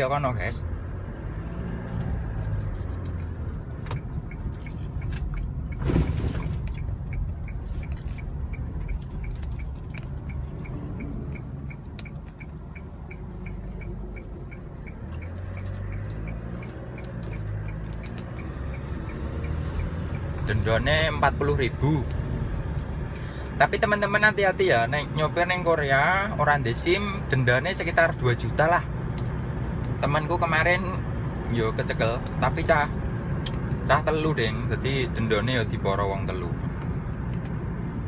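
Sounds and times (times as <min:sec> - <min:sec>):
truck engine and road drone: 0:00.0 - 0:38.0
turn signal ticking: 0:00.0 - 0:38.0.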